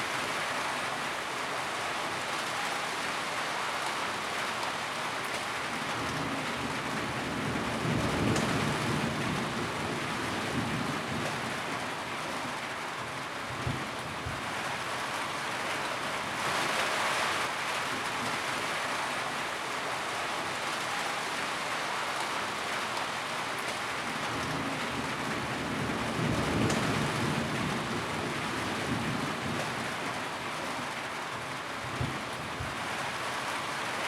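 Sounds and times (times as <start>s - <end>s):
heavy rain on a tin roof: 0.0s - 34.0s.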